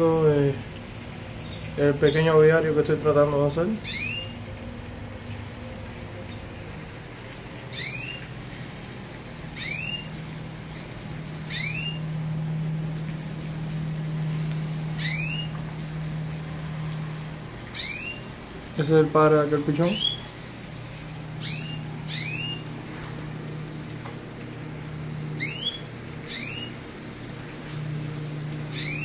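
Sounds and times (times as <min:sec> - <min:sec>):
steady low hum: 0:00.0 - 0:29.0
songbird chirps: 0:01.1 - 0:06.7, 0:07.7 - 0:08.4, 0:09.6 - 0:10.1, 0:11.5 - 0:12.1, 0:15.0 - 0:15.6, 0:17.7 - 0:18.3, 0:21.4 - 0:22.7, 0:25.3 - 0:26.8, 0:28.7 - 0:29.0.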